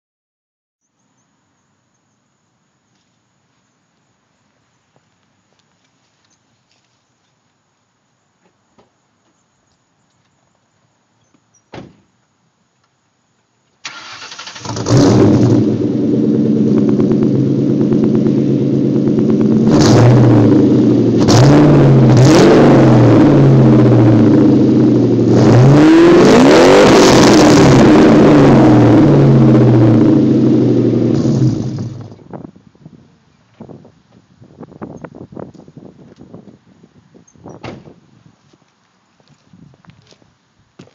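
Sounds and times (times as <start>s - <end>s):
car engine starting and revving: 13.8s - 32.3s.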